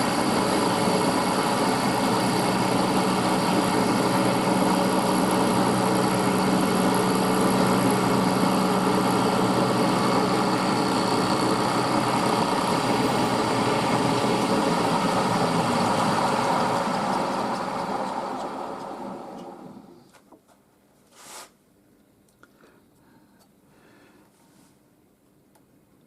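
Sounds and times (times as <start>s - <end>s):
milling machine cutting metal: 0.0s - 19.9s.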